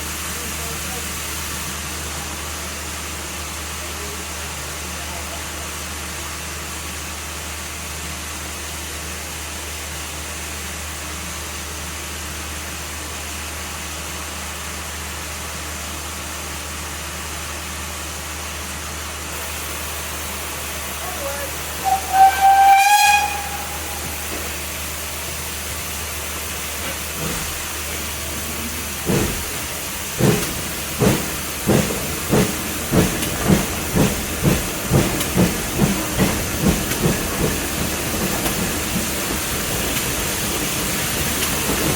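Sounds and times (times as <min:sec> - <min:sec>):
steam hissing: 0:19.3 - 0:41.9
locomotive exhaust chuffs: 0:21.7 - 0:41.9
steam locomotive whistle: 0:21.8 - 0:24.5.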